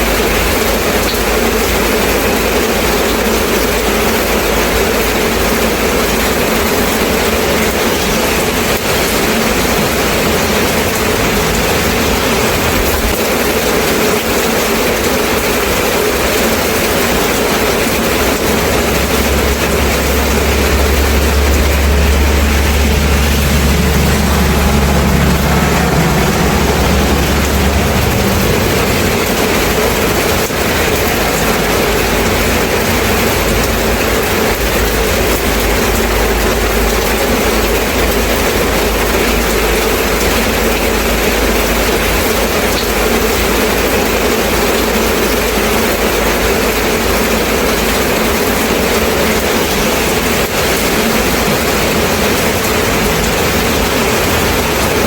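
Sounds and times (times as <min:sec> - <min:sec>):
steady rain: 0:00.0 - 0:55.0
low rumble: 0:06.2 - 0:15.1, 0:16.0 - 0:41.9.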